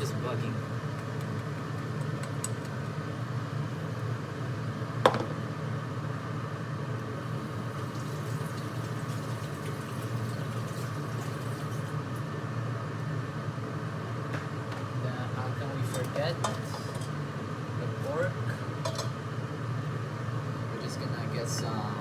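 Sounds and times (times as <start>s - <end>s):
low kitchen hum: 0.0s - 22.0s.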